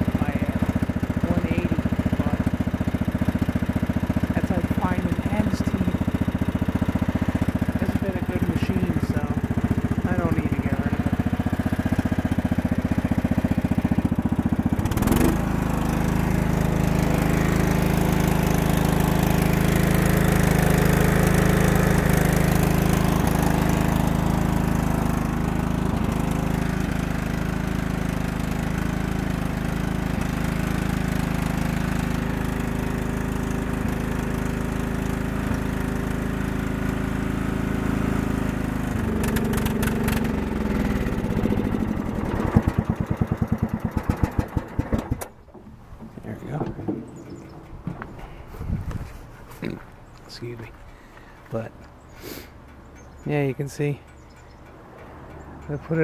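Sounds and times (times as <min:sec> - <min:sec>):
riding mower engine running: 0:00.0 - 0:56.0.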